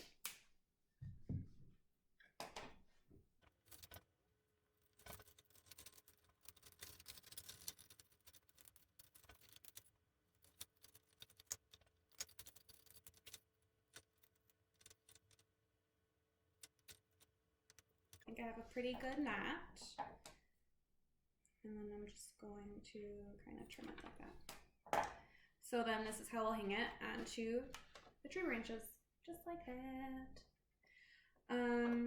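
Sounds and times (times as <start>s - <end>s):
soft rustling of twine: 4.7s - 15.6s.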